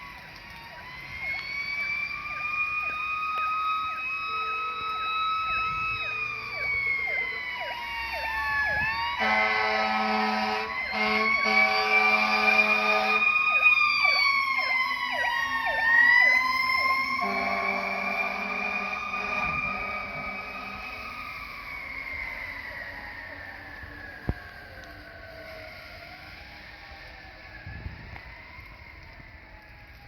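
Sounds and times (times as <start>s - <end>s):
fire engine sirens: 0.0s - 30.0s
fire truck air horn blasts: 8.8s - 13.4s, 16.9s - 21.3s.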